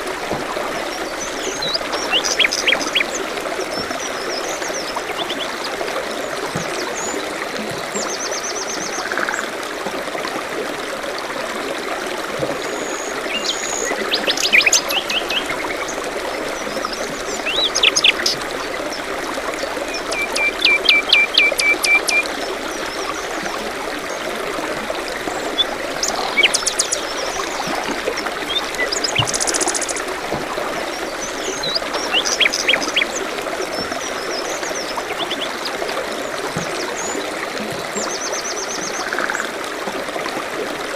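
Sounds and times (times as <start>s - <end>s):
forest stream trickling: 0.0s - 40.9s
songbirds trilling and chirping: 0.7s - 5.8s, 12.7s - 23.4s, 25.2s - 36.0s.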